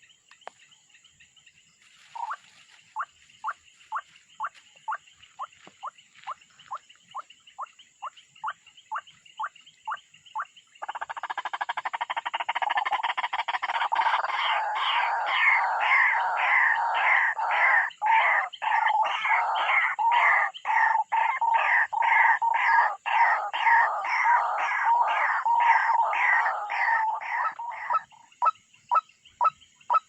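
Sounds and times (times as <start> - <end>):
animal rasping chatter: 6.6 - 30.0.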